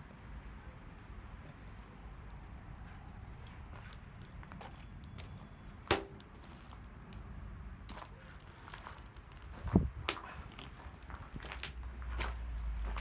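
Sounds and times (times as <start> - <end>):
sharp metallic knock: 5.9 - 6.2.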